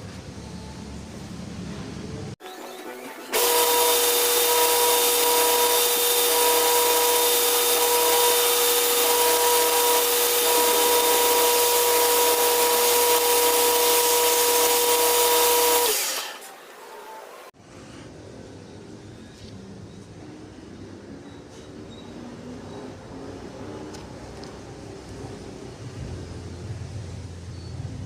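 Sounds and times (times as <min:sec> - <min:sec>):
power tool whining: 0:03.3 - 0:17.4.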